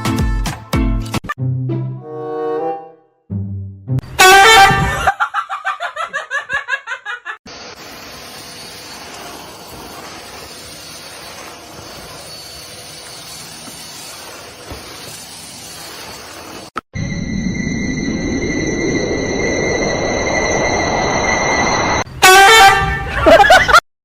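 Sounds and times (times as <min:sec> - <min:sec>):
person laughing: 0:04.8 - 0:07.4, 0:23.0 - 0:23.8.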